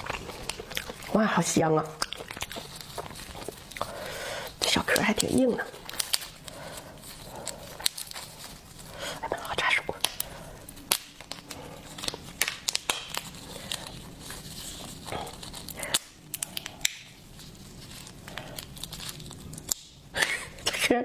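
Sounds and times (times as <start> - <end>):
soft rustling: 0.0 - 19.8
lobster shell cracking: 0.0 - 20.7.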